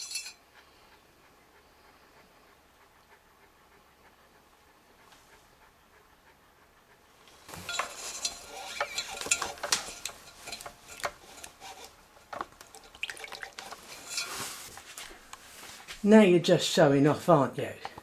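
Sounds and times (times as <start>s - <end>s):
potter's tools clinking and scraping: 0.0s - 0.4s, 7.4s - 15.9s.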